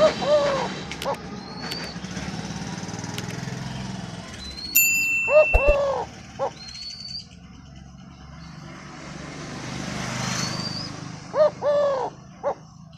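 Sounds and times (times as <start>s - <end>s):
dove cooing: 0.0s - 1.8s, 5.3s - 6.7s, 11.3s - 12.7s
small bird chirping: 4.4s - 8.6s.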